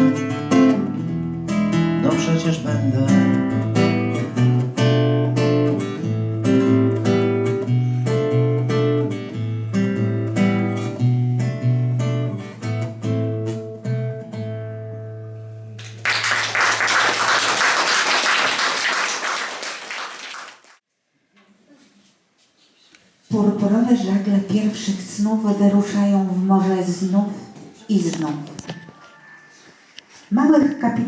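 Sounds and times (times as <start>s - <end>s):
acoustic guitar strumming: 0.0s - 16.0s
audience applause: 15.8s - 20.8s.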